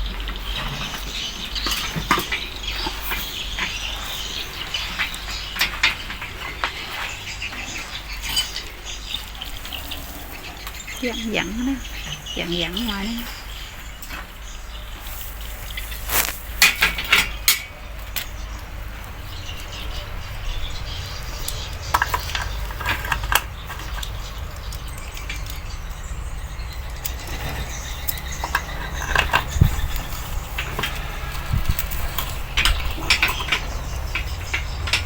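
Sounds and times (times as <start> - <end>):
metal tools clinking: 1.6 - 10.0, 26.9 - 35.0.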